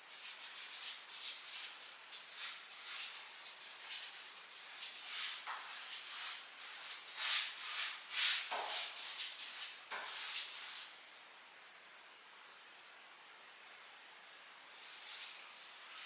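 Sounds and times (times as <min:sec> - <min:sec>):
faint hiss: 0:00.0 - 0:16.0.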